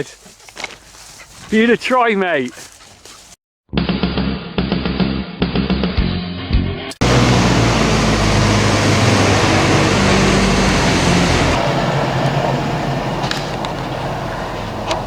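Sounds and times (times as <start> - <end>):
music: 3.7 - 7.0
farm machinery engine under load: 7.0 - 15.0.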